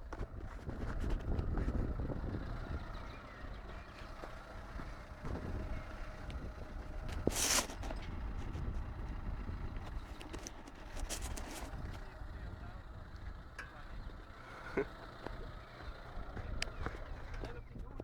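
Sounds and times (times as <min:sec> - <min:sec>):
engine low rumble: 0:00.0 - 0:18.0.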